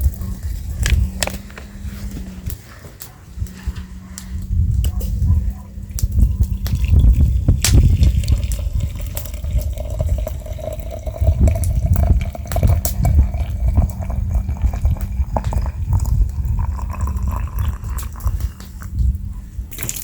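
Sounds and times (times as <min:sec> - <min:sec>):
water pouring into vessel: 0:05.9 - 0:18.9.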